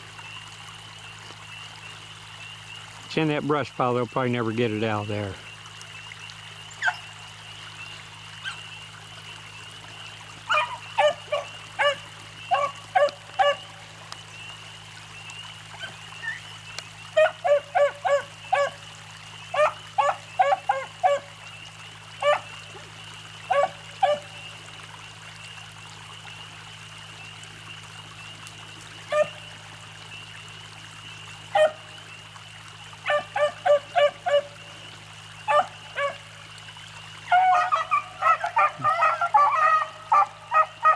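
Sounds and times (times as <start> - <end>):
creek water trickling: 0.0 - 40.9
dogs baying and barking: 10.4 - 13.8, 17.1 - 18.8, 19.5 - 21.4, 22.2 - 24.4, 29.1 - 29.5, 31.5 - 31.9, 33.0 - 34.6, 35.4 - 36.3, 37.2 - 40.9.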